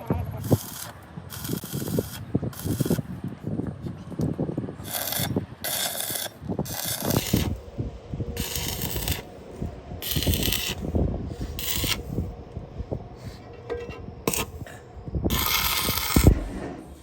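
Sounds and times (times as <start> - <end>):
metal knocks and rubbing: 13.2 - 17.0.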